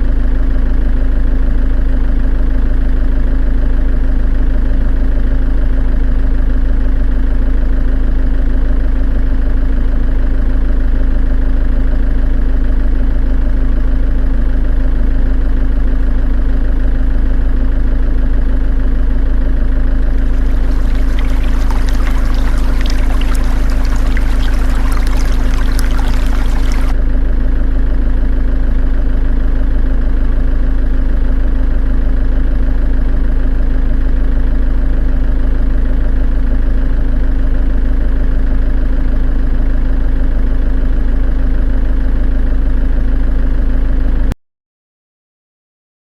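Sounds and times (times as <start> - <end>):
crackling hiss: 20.2 - 26.9.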